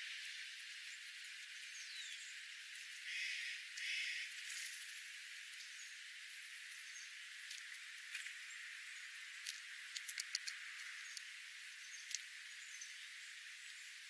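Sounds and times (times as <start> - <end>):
steady outdoor hiss: 0.0 - 14.0
sharp clicks: 9.4 - 11.3.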